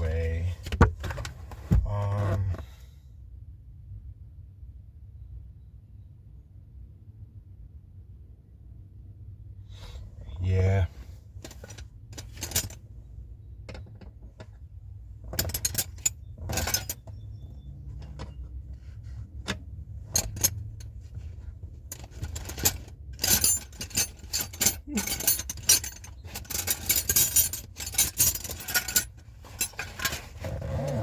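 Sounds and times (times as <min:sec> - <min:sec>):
metal wrenches clinking: 0:11.4 - 0:12.8, 0:15.2 - 0:31.0.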